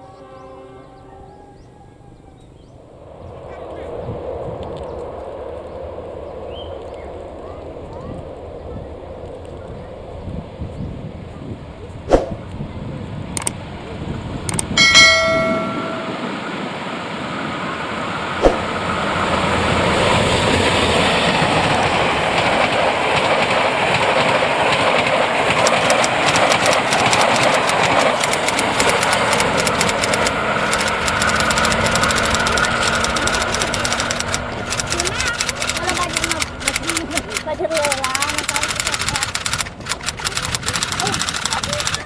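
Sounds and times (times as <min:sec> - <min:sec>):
train horn blast: 0:00.0 - 0:01.8
train wheels rumbling on rail: 0:02.8 - 0:42.0
wheels clicking over rail joints: 0:13.3 - 0:16.4, 0:18.0 - 0:42.0.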